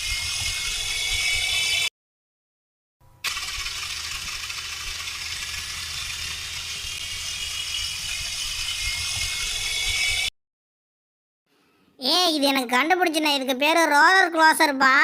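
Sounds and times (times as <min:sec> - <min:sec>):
steady rattle: 0:03.2 - 0:10.0
toy car motor whirring: 0:03.2 - 0:10.3.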